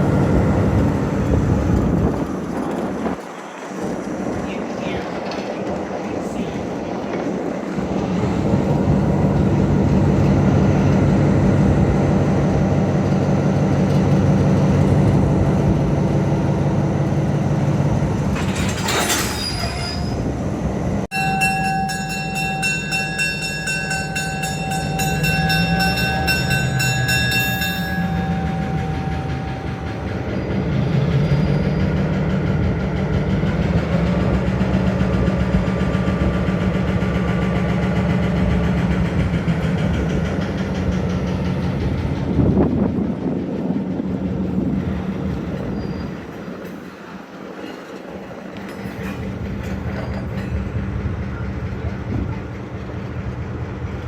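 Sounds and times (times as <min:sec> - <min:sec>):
train moving on track: 0:00.0 - 0:54.0
high-pitched wheel squeal: 0:18.7 - 0:20.4, 0:24.1 - 0:32.1.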